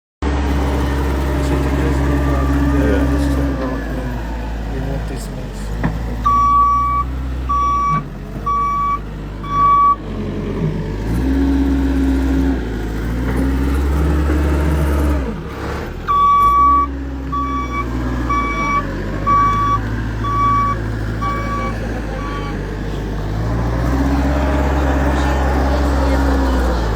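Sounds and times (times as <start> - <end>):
vehicle engine running: 0.2 - 26.9
reversing alarm beeping: 6.2 - 10.0, 16.1 - 22.7.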